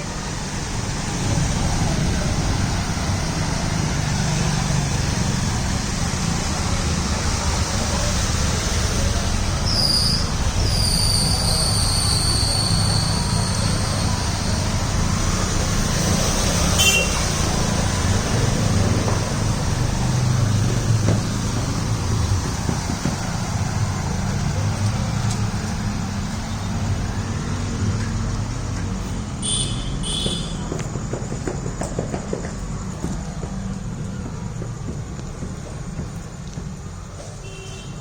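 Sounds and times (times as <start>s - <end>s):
heavy rain: 0.0s - 30.2s
road traffic: 0.0s - 38.0s
vehicle engines rumbling: 0.0s - 38.0s
high squeal: 9.6s - 15.1s.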